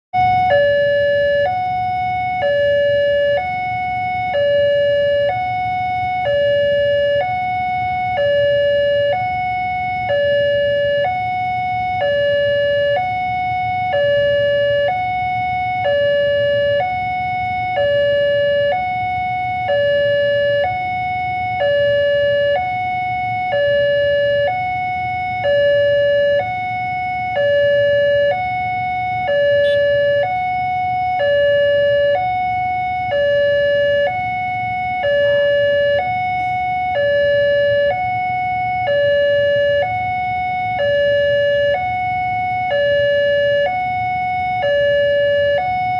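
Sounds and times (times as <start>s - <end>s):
level crossing two-tone alarm: 0.1s - 45.9s
low steady rumble: 0.2s - 45.9s.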